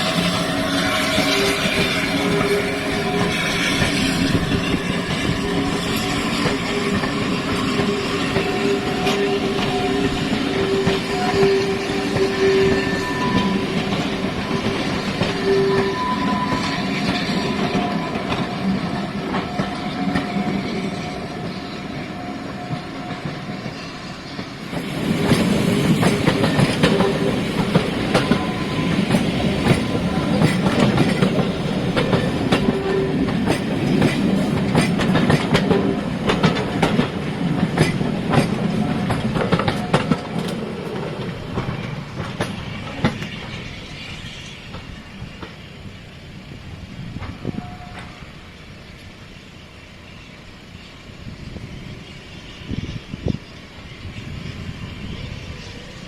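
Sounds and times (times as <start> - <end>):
train wheels clicking over rail joints: 0.0 - 46.0.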